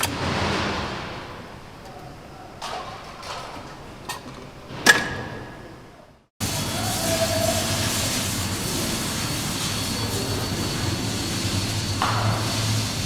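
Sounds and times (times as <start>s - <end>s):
burst of hiss: 6.4s - 13.0s
machine hum and hiss: 6.4s - 13.0s.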